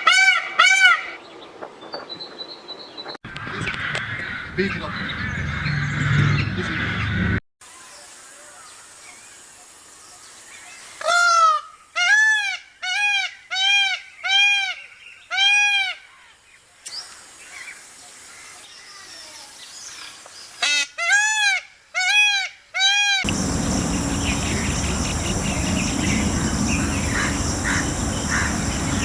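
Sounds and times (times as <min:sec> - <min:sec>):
peacock calling: 0:03.3 - 0:07.4, 0:23.3 - 0:29.0.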